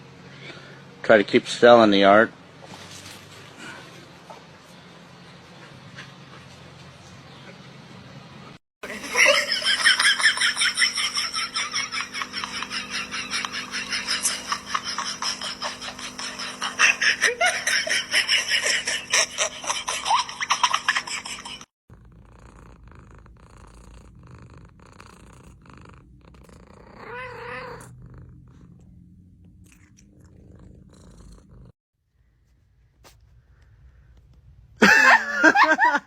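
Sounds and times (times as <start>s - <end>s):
cat meowing: 26.9s - 27.9s.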